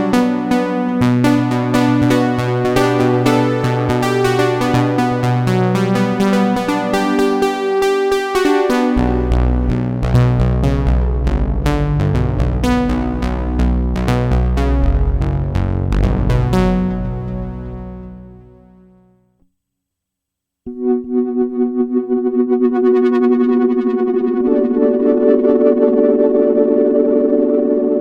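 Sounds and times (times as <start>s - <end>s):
deep synth bass: 0.0s - 7.4s, 8.4s - 19.2s
synthesizer playing fast notes: 0.0s - 18.6s.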